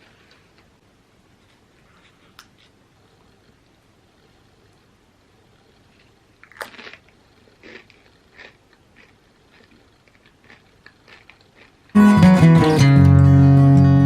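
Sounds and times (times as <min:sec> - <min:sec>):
crunchy chewing: 0:05.8 - 0:12.0
bite into crunchy chip: 0:06.4 - 0:12.0.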